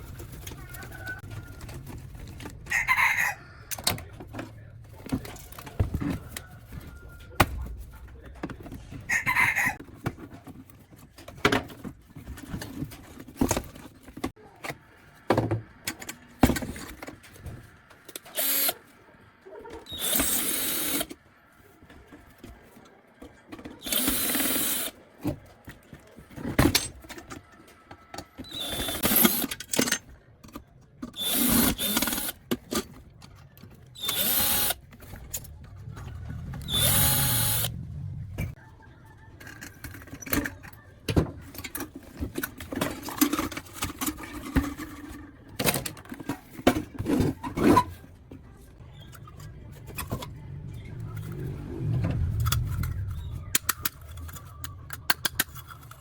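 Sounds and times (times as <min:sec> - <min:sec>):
power tool running: 0:36.7 - 0:37.7.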